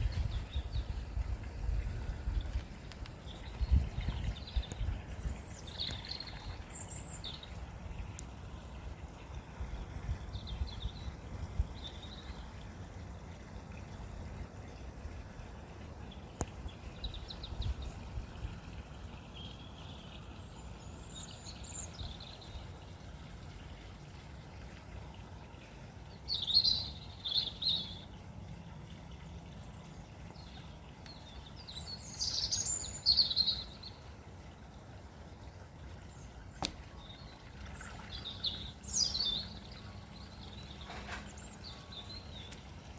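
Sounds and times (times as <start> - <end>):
low steady rumble: 0.0 - 42.9
birds chirping: 2.4 - 9.0, 26.1 - 28.2, 29.5 - 34.1, 36.1 - 42.8.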